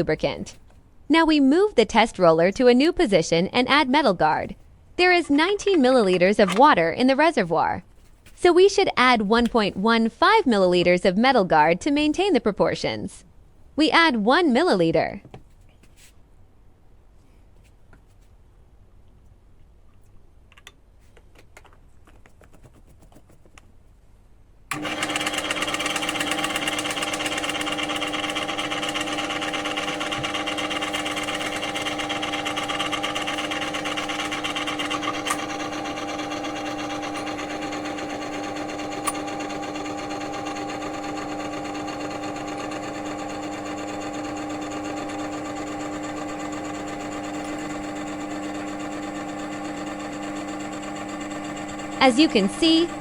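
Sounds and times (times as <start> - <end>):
electric motor humming and whining: 24.7 - 53.0.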